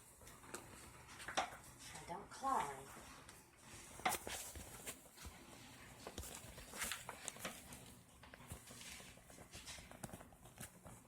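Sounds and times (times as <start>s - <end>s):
pet claws tapping and scratching: 4.0s - 11.0s.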